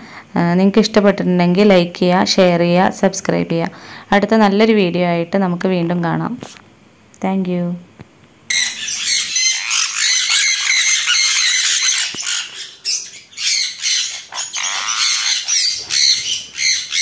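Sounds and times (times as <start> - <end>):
parrots squawking: 8.5 - 17.0.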